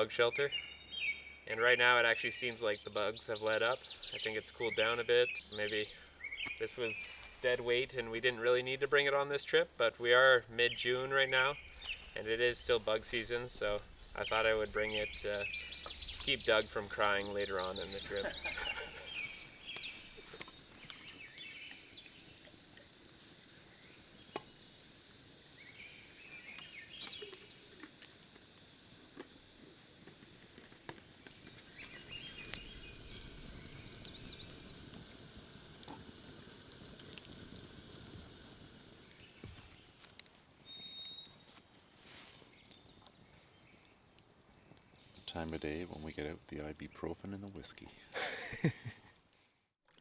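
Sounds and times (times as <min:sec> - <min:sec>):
faint background hiss: 0:00.0 - 0:42.3, 0:45.2 - 0:49.5
songbirds chirping: 0:00.0 - 0:49.3
high whistled bird notes: 0:09.5 - 0:22.4, 0:31.6 - 0:34.8, 0:40.6 - 0:43.9.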